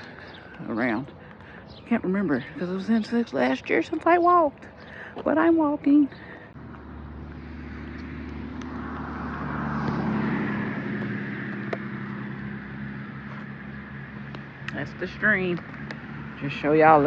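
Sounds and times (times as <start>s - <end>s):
car driving past: 6.5s - 17.0s.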